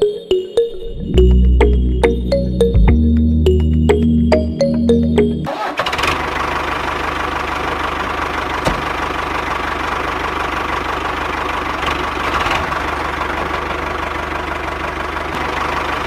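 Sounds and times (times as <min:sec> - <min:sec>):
small engine knocking and humming: 0:05.8 - 0:16.0.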